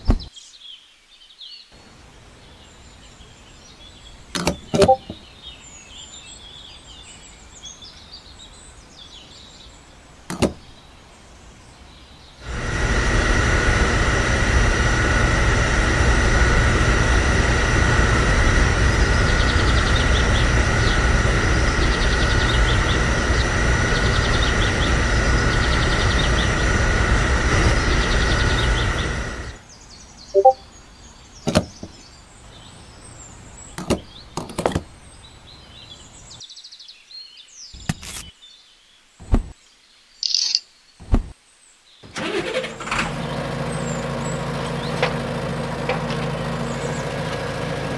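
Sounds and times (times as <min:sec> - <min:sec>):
small motor whining: 0:12.4 - 0:29.6, 0:42.1 - 0:47.9
short high chirp: 0:30.4 - 0:30.6
sharp clicks: 0:40.2 - 0:41.3.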